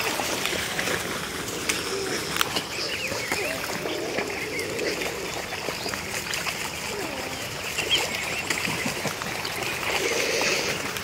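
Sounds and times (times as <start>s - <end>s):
songbirds chirping and twittering: 0.0s - 11.0s.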